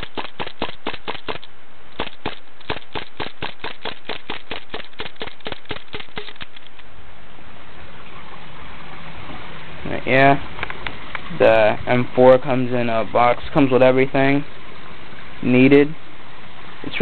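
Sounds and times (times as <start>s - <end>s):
airsoft gun clicking: 0.0s - 6.9s.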